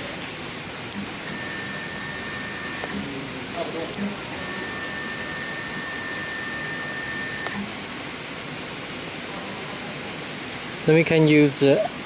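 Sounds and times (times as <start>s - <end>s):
stepper motors whining: 1.3s - 3.1s, 4.2s - 7.6s.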